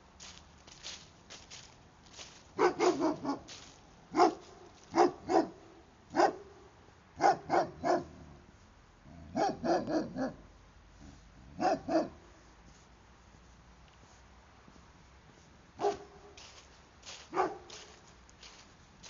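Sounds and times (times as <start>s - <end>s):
faint footsteps: 0.0s - 5.2s, 12.3s - 19.0s
dog barking: 2.6s - 3.5s, 4.1s - 8.2s, 9.3s - 10.4s, 11.5s - 12.2s, 15.8s - 16.4s, 17.3s - 17.8s.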